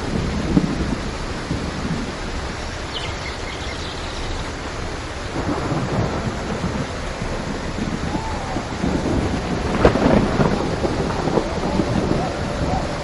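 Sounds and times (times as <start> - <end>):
steady rain: 0.0 - 13.0
thunder rumbling: 0.0 - 13.0
sharp thunder crack: 5.3 - 13.0.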